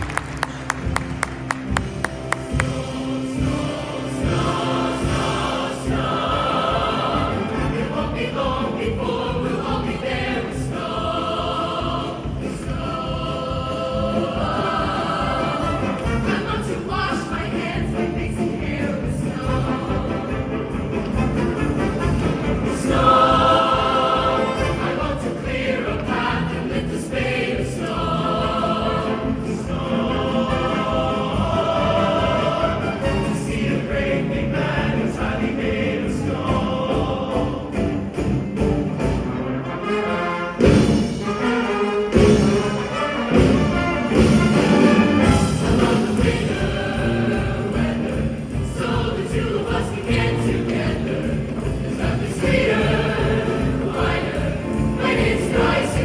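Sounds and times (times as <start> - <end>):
loud accented beats: 0.0 - 7.3
choir singing with instruments: 0.0 - 56.0.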